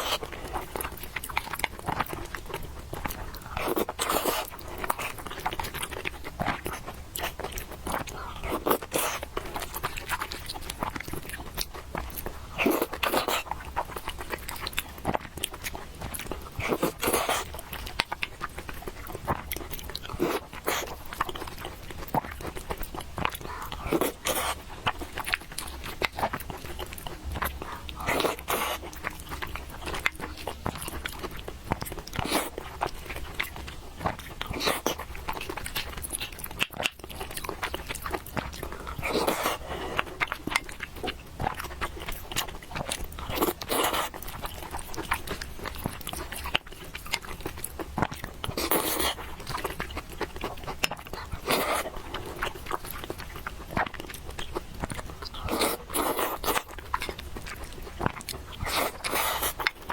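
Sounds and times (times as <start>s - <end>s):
wet chewing of noodles: 0.0s - 59.9s.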